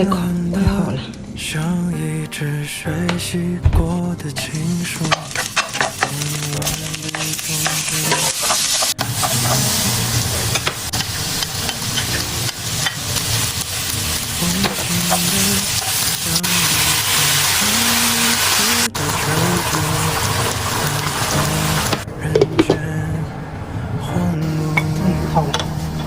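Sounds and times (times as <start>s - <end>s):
food sizzling in a pan: 4.4s - 22.0s.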